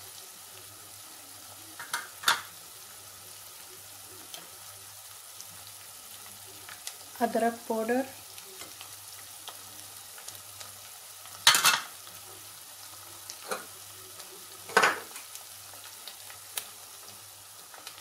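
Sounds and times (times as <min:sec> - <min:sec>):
onion and garlic frying in oil: 0:00.0 - 0:18.0
pot clattering: 0:01.8 - 0:02.5, 0:11.4 - 0:11.9, 0:14.7 - 0:15.2.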